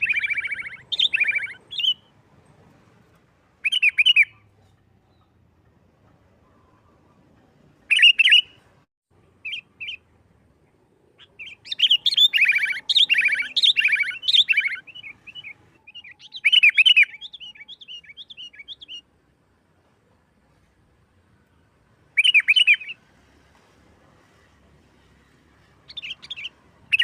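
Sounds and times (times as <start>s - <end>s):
bulbul singing rapid notes: 0.0s - 2.1s, 11.2s - 19.0s.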